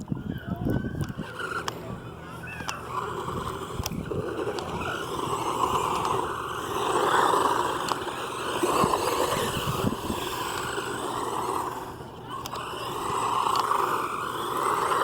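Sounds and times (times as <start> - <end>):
electric motor whining: 0.0 - 15.0
tyres scraping over ground: 0.0 - 15.0.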